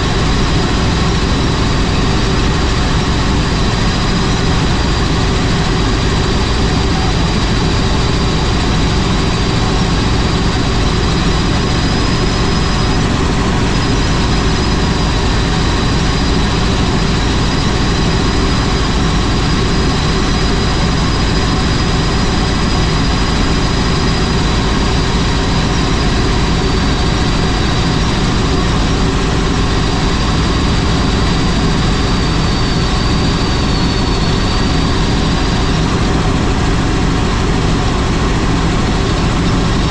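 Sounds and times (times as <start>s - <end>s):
helicopter engine and rotor noise: 0.0s - 39.9s
high whine: 0.0s - 39.9s.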